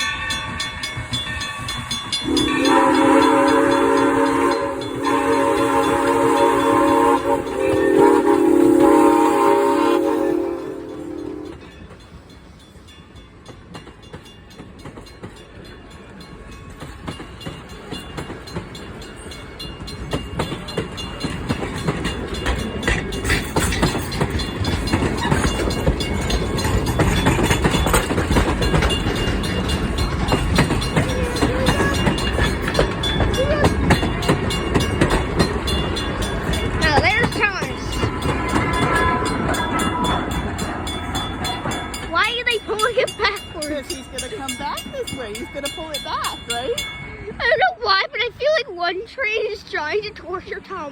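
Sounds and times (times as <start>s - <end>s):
train wheels rumbling over rails: 0.0s - 47.3s
train whistle: 2.2s - 11.8s, 38.5s - 40.4s.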